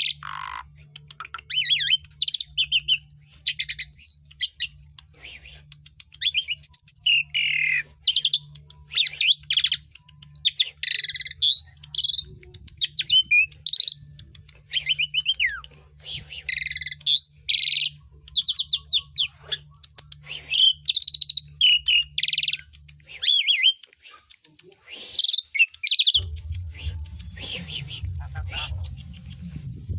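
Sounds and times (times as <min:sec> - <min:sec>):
starling singing: 0:00.0 - 0:04.8, 0:06.2 - 0:15.7, 0:25.2 - 0:29.5
low hum: 0:00.0 - 0:23.3, 0:25.8 - 0:29.9.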